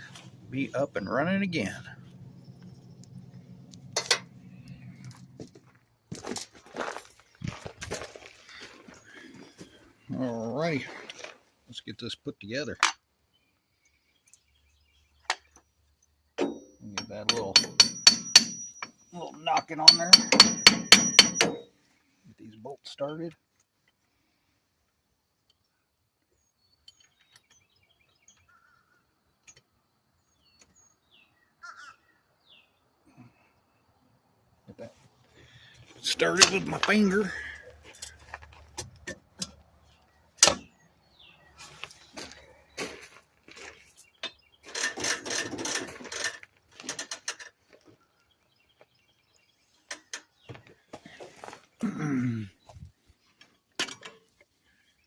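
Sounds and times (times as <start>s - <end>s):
faint birds chirping: 0.0s - 45.1s, 46.5s - 55.0s
metal tools rattling and clicking: 3.7s - 5.1s, 16.5s - 21.7s.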